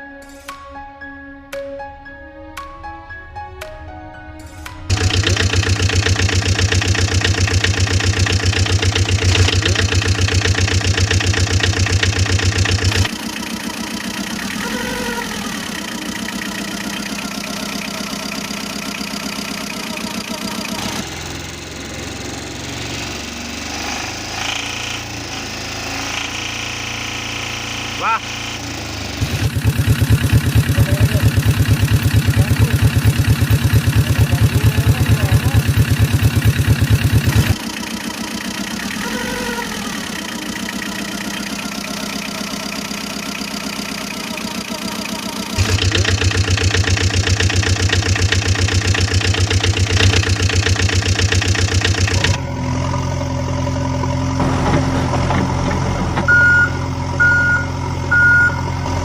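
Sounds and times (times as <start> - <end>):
diesel engines running: 4.7 - 59.0
reversing alarm beeps: 56.3 - 58.8.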